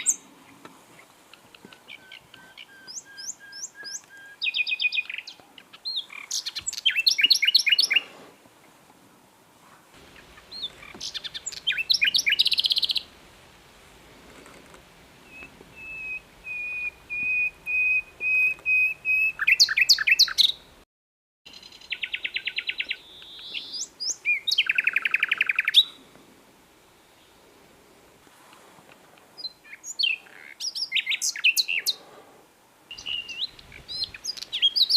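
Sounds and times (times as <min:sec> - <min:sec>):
nightingale singing: 0:00.0 - 0:00.3, 0:01.3 - 0:08.1, 0:10.0 - 0:13.2, 0:15.2 - 0:20.8, 0:21.5 - 0:26.0, 0:29.4 - 0:32.0, 0:32.9 - 0:34.9.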